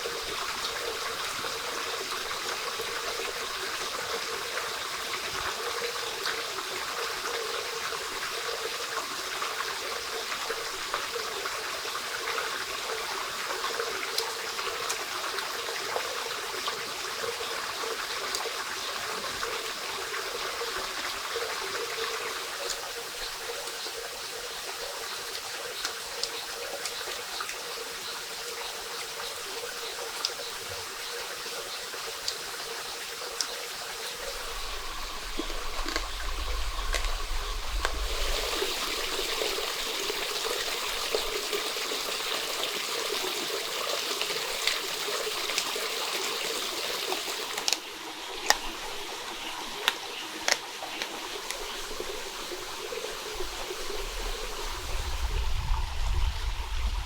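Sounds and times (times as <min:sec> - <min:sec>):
small stream trickling: 0:00.0 - 0:57.0
low rumble: 0:34.3 - 0:39.8, 0:53.4 - 0:57.0.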